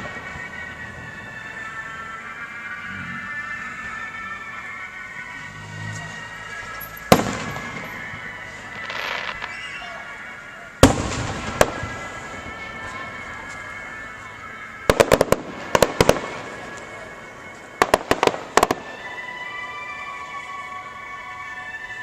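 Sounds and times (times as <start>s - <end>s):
music: 0.0s - 22.0s
firework crackling: 6.0s - 9.9s, 10.8s - 13.5s, 14.8s - 19.1s
firework booms: 7.1s - 9.6s, 10.8s - 12.3s, 14.9s - 16.7s.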